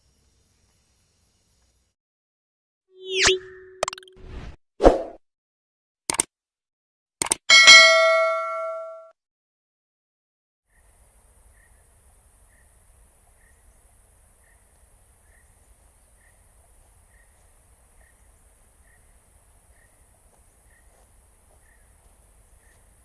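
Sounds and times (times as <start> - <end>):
short insect chirp: 0.0 - 1.9.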